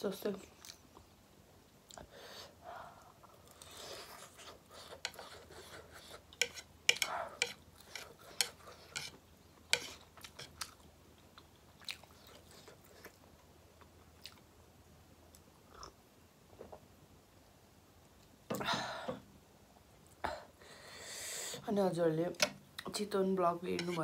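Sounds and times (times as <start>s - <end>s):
person chewing crunchy food: 3.4s - 13.2s.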